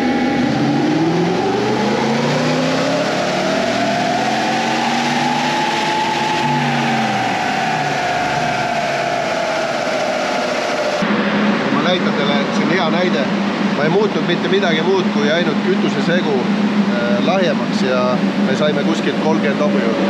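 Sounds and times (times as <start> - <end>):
engine revving on a dynamometer: 0.0 - 20.0.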